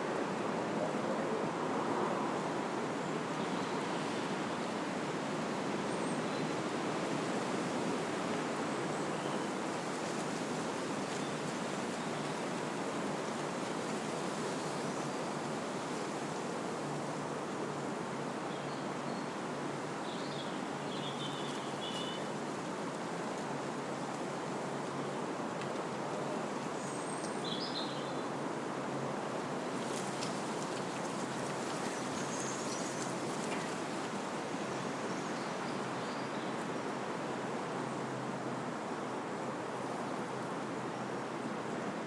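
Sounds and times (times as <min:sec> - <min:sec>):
wind blowing through trees: 0:18.2 - 0:42.0.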